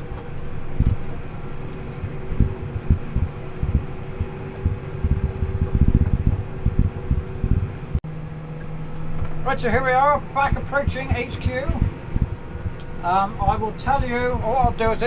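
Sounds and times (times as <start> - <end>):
steady whine: 0.0 - 15.0
tractor engine running: 0.0 - 15.0
low thumps: 2.0 - 8.0, 8.7 - 13.6.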